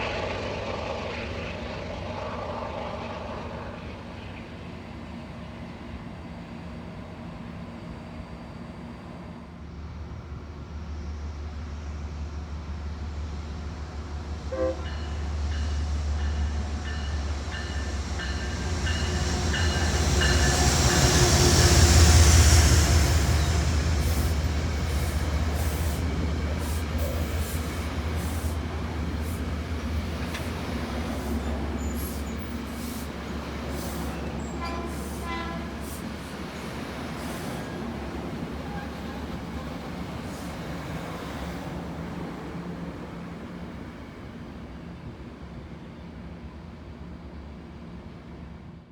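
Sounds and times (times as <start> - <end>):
train rumbling past: 0.0 - 48.8
train horn: 14.5 - 15.4, 33.8 - 36.2, 38.5 - 39.4.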